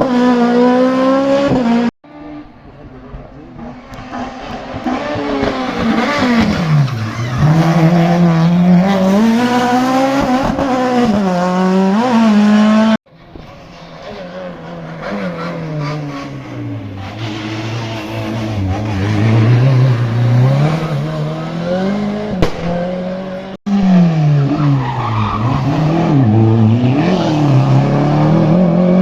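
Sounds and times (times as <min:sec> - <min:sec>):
race car engine passing: 0:00.0 - 0:29.0
tyre squeal: 0:05.5 - 0:09.7.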